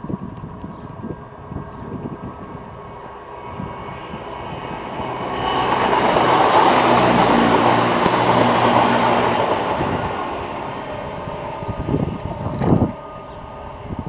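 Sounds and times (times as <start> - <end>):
train wheel and rail noise: 0.0 - 14.0
diesel engines droning: 0.4 - 14.0.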